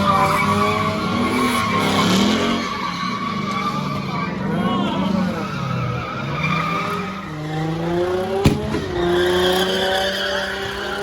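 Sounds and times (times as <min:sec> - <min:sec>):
car engines revving: 0:00.0 - 0:11.0
tires squealing: 0:00.0 - 0:11.0
sharp crack: 0:08.4 - 0:09.1.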